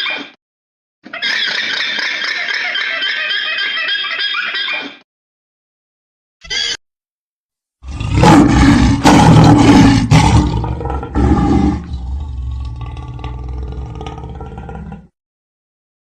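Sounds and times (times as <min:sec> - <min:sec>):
large animal roaring: 0:07.8 - 0:15.1.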